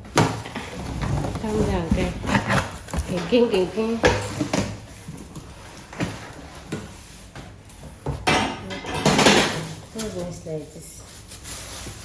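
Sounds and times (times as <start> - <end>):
packaging scraping rustle: 9.7 - 12.0.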